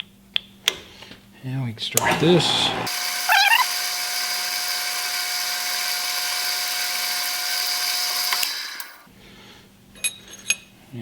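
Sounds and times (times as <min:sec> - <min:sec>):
milling machine spindle whining: 0:02.0 - 0:09.0.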